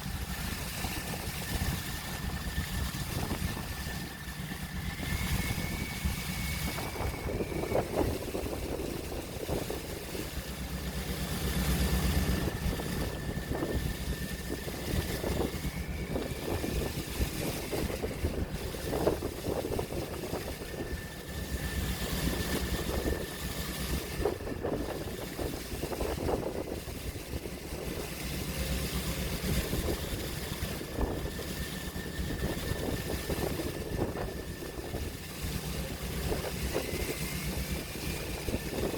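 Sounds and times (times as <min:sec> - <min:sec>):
faint thin whine: 0:00.0 - 0:38.9
low mechanical hum: 0:00.0 - 0:38.9
waves washing and splashing: 0:00.0 - 0:38.9.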